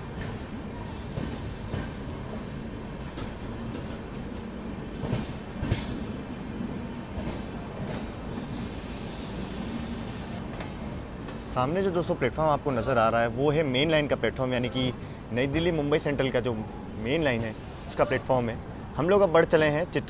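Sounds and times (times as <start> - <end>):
train wheels rumbling on rail: 0.0 - 20.0
faint high wheel squeals: 5.8 - 7.2, 8.4 - 11.2.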